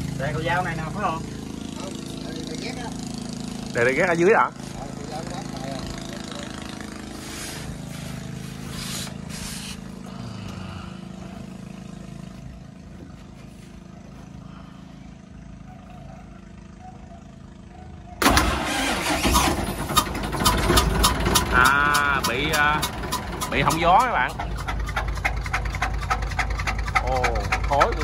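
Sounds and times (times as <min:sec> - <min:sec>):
low engine hum: 0:00.0 - 0:28.0
diesel engine puffing: 0:18.2 - 0:28.0.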